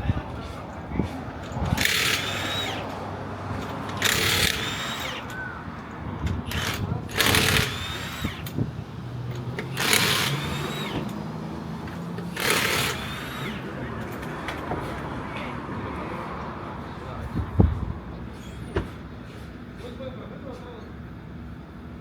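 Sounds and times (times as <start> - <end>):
impact wrench bursts: 1.5 - 5.7, 6.4 - 14.6.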